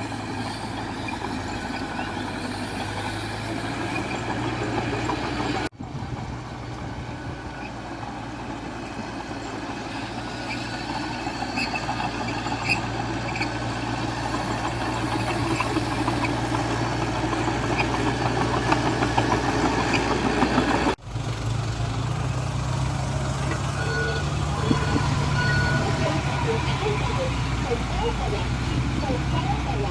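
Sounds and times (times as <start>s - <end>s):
bulldozer diesel engine running: 0.0s - 29.9s.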